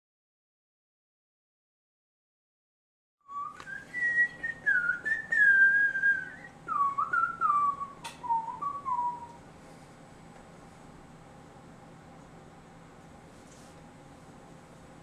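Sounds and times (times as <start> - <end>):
person whistling a tune: 3.3 - 9.4
sharp click: 8.0 - 8.3.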